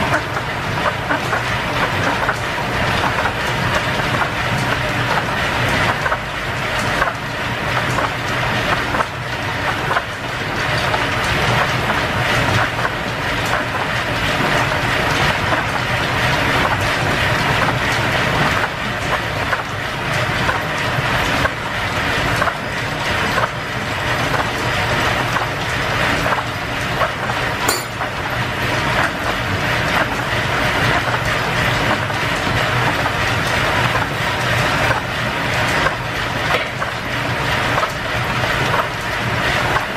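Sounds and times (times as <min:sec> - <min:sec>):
metal lathe clattering: 0:27.7 - 0:28.5.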